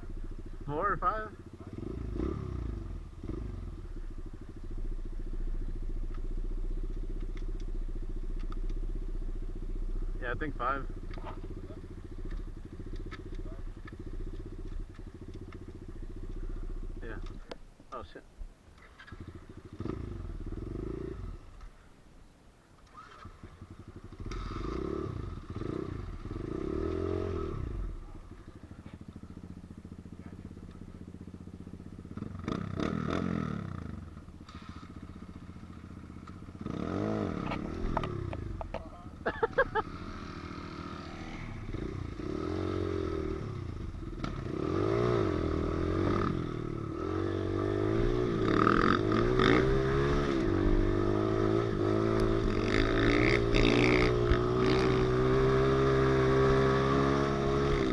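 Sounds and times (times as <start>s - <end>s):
small motorbike engine revving: 1.5s - 17.4s, 18.8s - 21.6s, 22.8s - 57.9s
sharp clicks: 8.3s - 8.8s.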